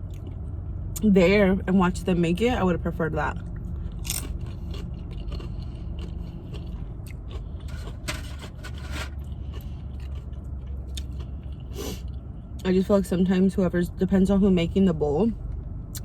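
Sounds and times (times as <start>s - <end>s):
chewing and crunching: 0.0s - 1.1s, 3.0s - 12.7s
low hum: 0.0s - 16.0s.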